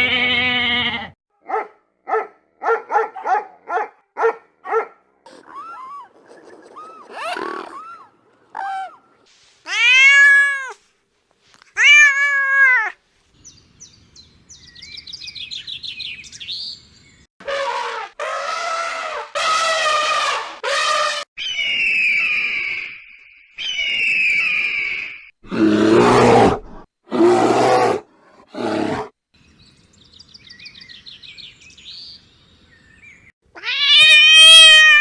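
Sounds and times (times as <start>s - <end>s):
cat meowing: 33.6s - 35.0s.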